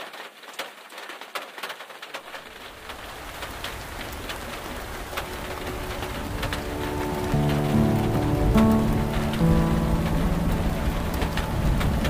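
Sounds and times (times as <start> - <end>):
rain on a vehicle roof: 0.0 - 12.0.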